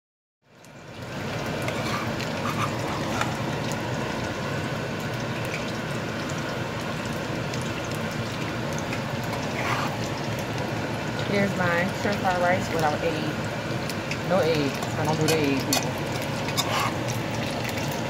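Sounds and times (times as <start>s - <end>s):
rice sizzling in a hot pan: 0.5s - 18.0s
metal spoon stirring in pan: 1.4s - 3.8s, 8.8s - 10.6s, 13.8s - 18.0s.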